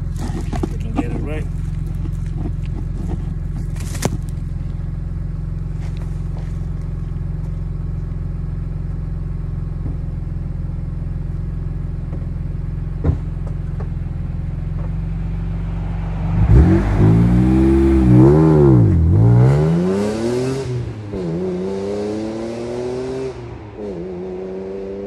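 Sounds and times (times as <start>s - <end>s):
car engine idling: 0.0s - 19.6s.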